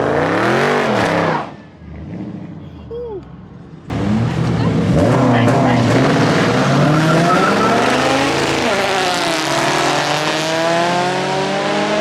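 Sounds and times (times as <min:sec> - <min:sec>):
car engine accelerating hard: 0:03.9 - 0:12.0.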